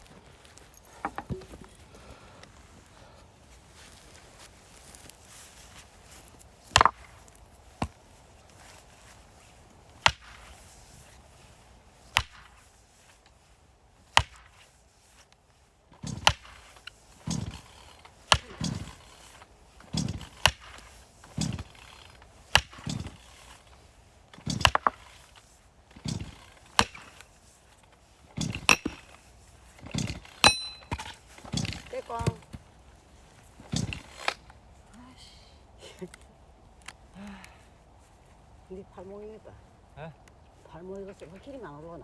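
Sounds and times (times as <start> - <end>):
axe splitting firewood: 0.9 - 2.2, 6.6 - 8.1, 9.9 - 10.7, 12.2 - 12.7, 14.0 - 14.7, 15.9 - 32.8, 33.4 - 34.5.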